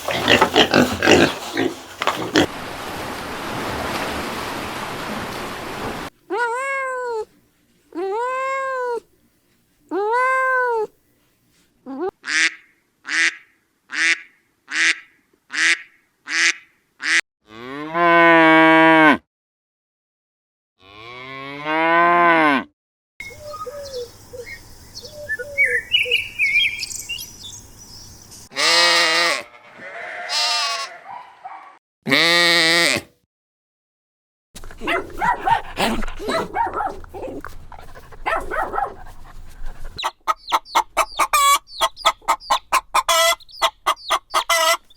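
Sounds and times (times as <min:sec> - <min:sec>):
short cow calls: 0:28.6 - 0:31.1, 0:32.1 - 0:33.1.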